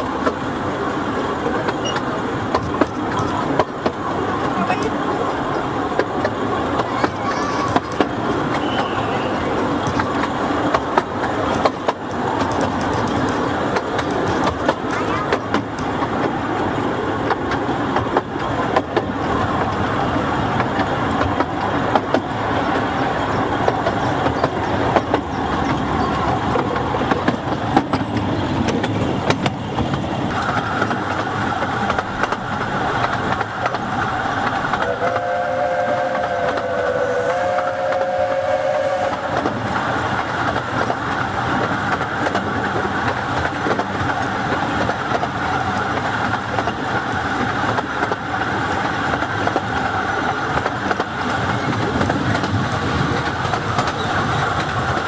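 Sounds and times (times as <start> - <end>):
wheels rumbling on rail: 0.0 - 55.0
locomotive whistle: 8.5 - 9.6, 30.3 - 31.0, 34.8 - 39.5.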